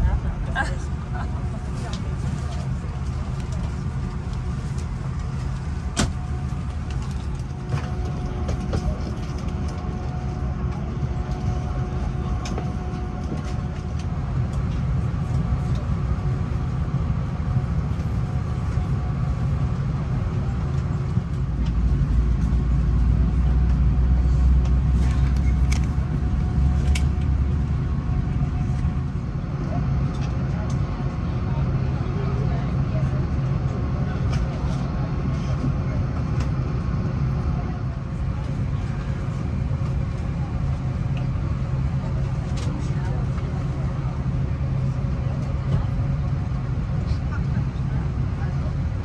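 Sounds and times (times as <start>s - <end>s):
airliner rumble and hum: 0.0s - 49.0s.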